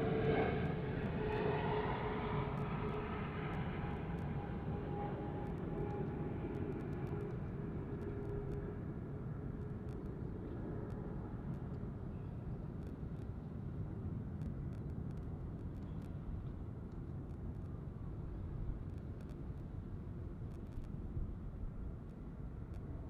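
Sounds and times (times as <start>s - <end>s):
faint ticks: 18.8s - 19.7s.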